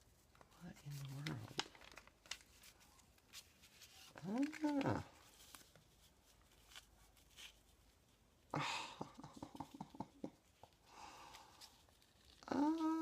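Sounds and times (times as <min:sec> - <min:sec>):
paper rustling: 0:00.0 - 0:08.5, 0:10.5 - 0:13.0.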